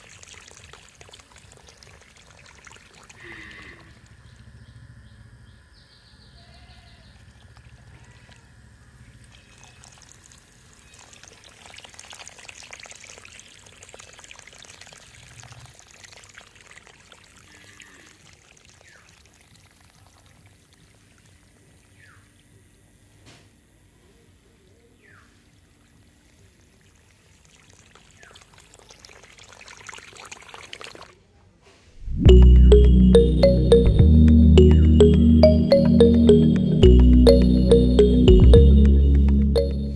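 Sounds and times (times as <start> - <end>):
water pouring and trickling: 0.0 - 3.2, 9.4 - 21.5, 26.6 - 31.2
loud music: 32.2 - 39.9.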